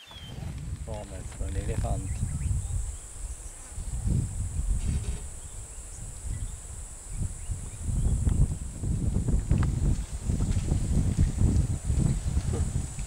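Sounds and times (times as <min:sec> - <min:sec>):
insects buzzing: 0:00.0 - 0:13.0
low uneven rumble: 0:00.3 - 0:13.0.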